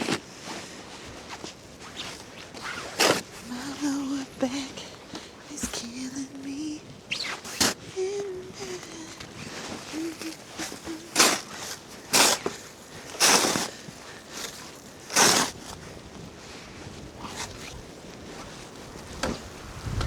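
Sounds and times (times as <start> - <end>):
snow shovel scraping snow: 0.0 - 4.1, 7.1 - 20.0
wind hissing: 18.9 - 20.0.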